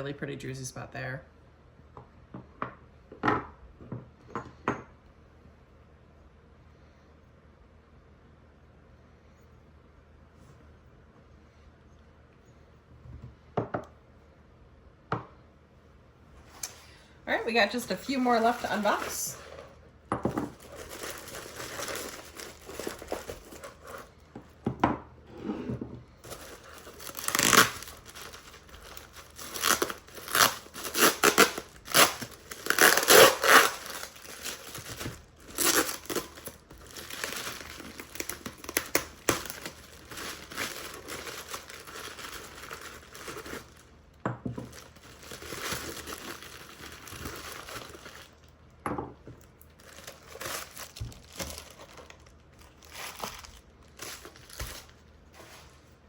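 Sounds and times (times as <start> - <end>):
packing wrap crinkling and tearing: 17.5 - 19.8, 20.4 - 24.2, 26.2 - 44.0, 44.6 - 48.6, 49.4 - 55.9.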